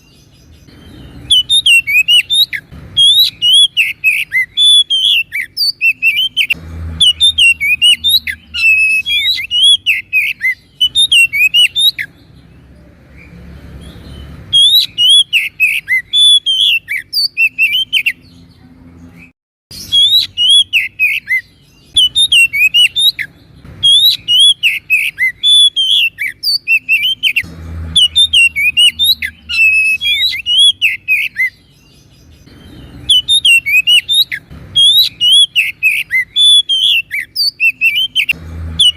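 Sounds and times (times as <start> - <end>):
bird singing high chirps: 0.0 - 38.9.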